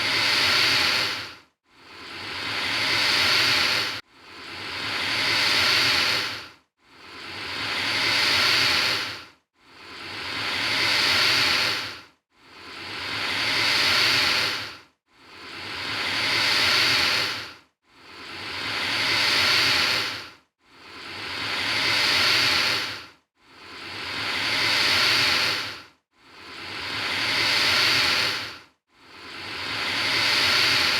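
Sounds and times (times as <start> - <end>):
alligator hissing: 0.0 - 1.3, 2.0 - 4.0, 4.8 - 6.4, 7.7 - 9.2, 10.0 - 11.9, 12.7 - 14.7, 15.4 - 17.4, 18.2 - 20.2, 20.9 - 23.0, 23.7 - 25.8, 26.4 - 28.5, 29.2 - 30.9.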